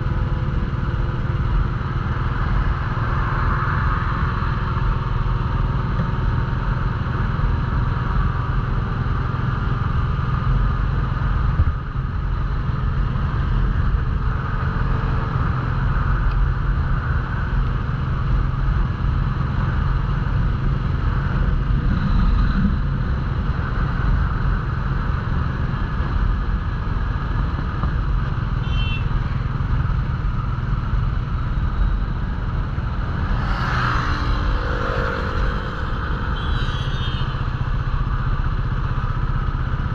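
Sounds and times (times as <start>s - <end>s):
motorcycle engine running: 3.8s - 39.9s
wind rushing: 21.1s - 23.9s.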